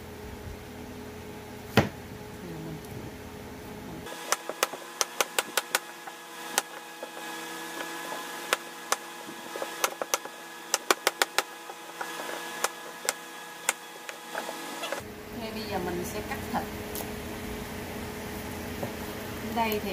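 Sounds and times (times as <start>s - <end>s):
steady hum: 0.0s - 19.9s
cleaver chopping on cutting board: 4.1s - 15.0s.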